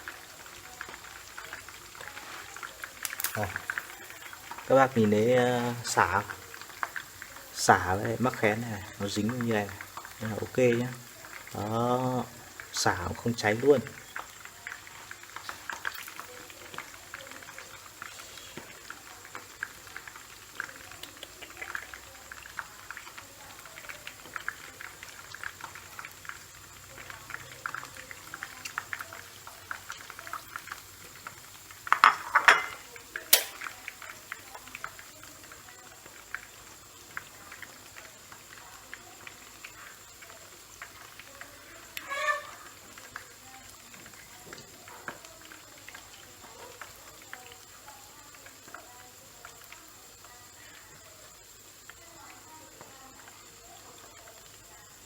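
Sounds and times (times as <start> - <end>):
hot oil crackling and popping: 0.0 - 55.0
metal utensil clattering on pan: 31.9 - 33.7.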